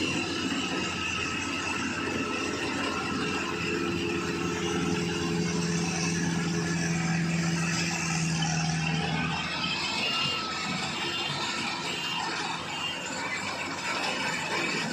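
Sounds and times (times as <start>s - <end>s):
harvesting machine engine running: 0.0s - 14.9s.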